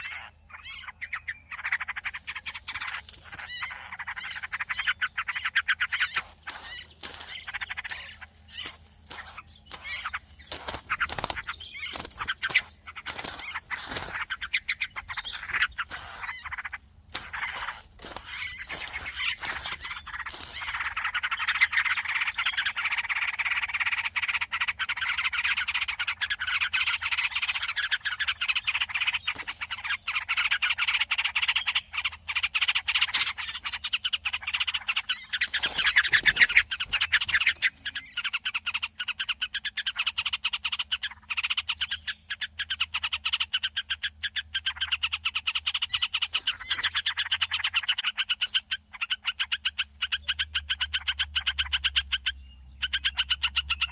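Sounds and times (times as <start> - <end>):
chorus of rasping croaking calls: 0.0 - 53.9.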